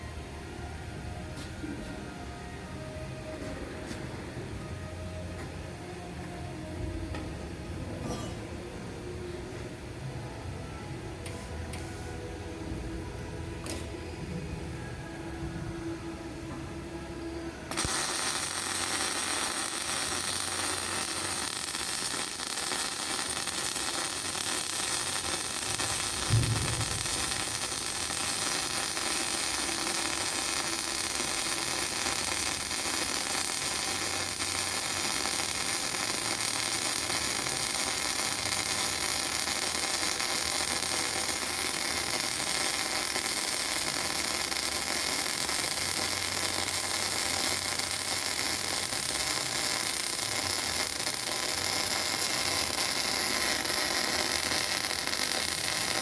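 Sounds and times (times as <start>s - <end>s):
welding arc hissing: 17.7s - 56.0s.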